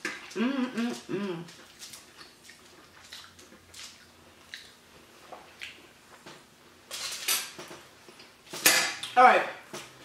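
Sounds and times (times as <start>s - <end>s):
wet chewing: 0.0s - 4.8s.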